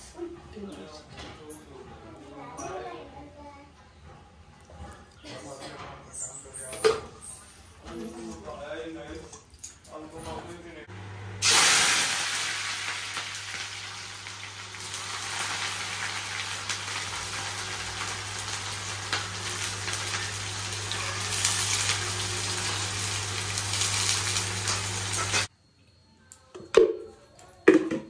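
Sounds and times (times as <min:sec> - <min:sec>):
chicken frying in hot oil: 0:11.4 - 0:25.5.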